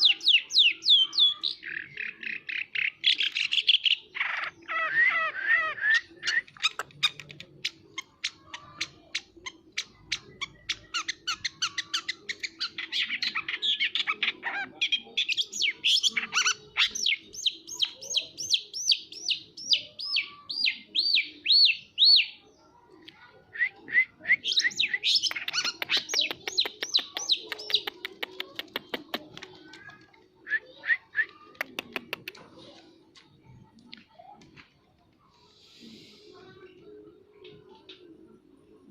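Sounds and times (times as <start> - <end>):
bird singing: 0.0 - 22.4, 23.6 - 28.0.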